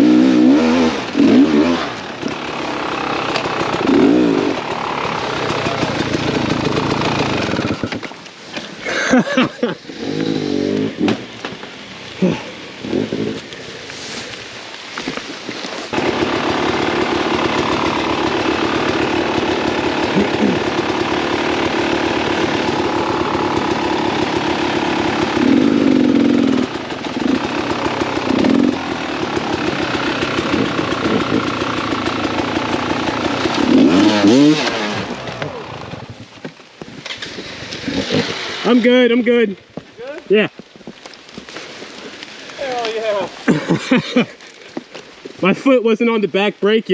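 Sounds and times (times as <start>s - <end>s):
dirt bike engine revving: 0.0s - 8.2s, 8.8s - 11.4s, 15.8s - 36.2s, 37.2s - 39.3s, 42.6s - 44.3s.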